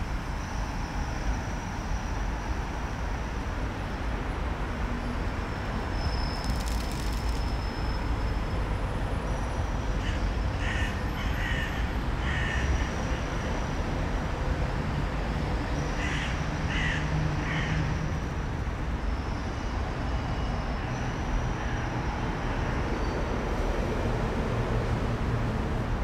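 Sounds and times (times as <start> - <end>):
steady background rush: 4.4 - 8.6.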